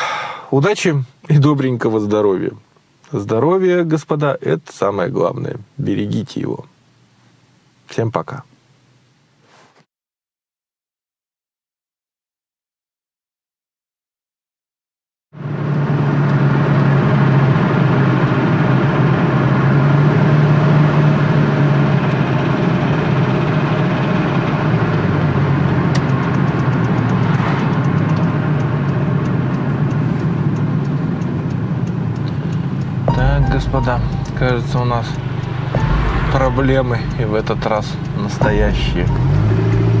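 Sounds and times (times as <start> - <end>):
car engine humming: 15.4 - 40.0.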